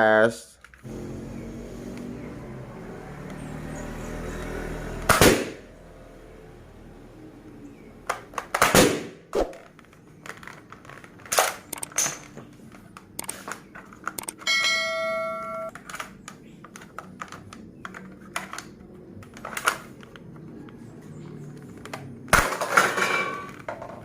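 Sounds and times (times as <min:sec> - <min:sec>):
toy gun shot: 0:05.1 - 0:05.6, 0:08.5 - 0:09.6
sharp cracks and clicks: 0:08.0 - 0:14.4.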